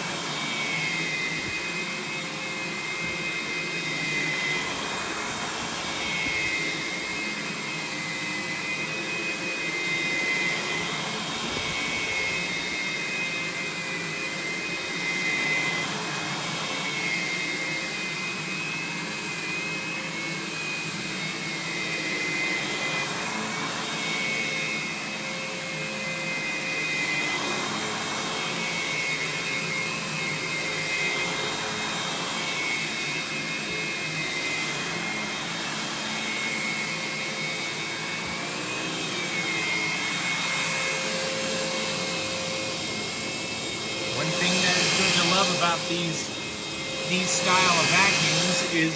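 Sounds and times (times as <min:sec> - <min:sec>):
vacuum cleaner motor whine: 0:00.0 - 0:48.9.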